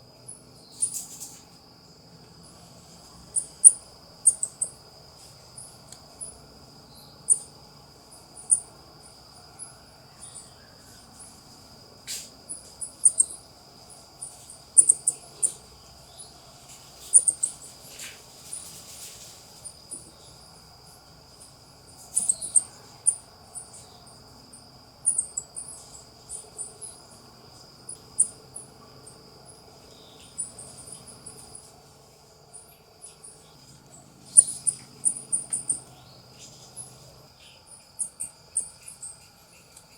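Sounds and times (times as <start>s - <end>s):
high insect trill: 0.0s - 39.9s
coatis chirping: 0.7s - 1.4s, 3.3s - 4.8s, 5.6s - 7.6s, 8.4s - 8.7s, 12.1s - 13.5s, 14.2s - 16.4s, 17.0s - 18.7s, 22.0s - 24.2s, 25.0s - 27.1s, 27.9s - 28.7s, 32.5s - 39.9s.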